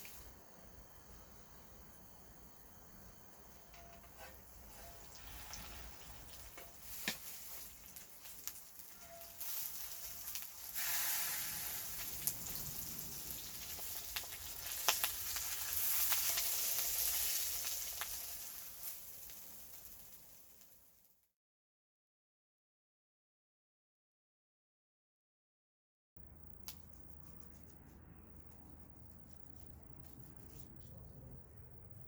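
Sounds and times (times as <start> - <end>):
food sizzling in a pan: 0.0 - 21.1.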